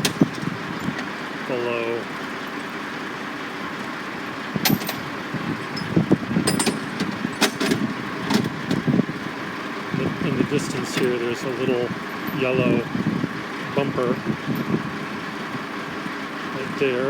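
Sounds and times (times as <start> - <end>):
sharp clicks and clanks: 0.0 - 1.1, 4.6 - 8.9
machinery rumble: 0.0 - 17.0
traffic: 0.0 - 17.0.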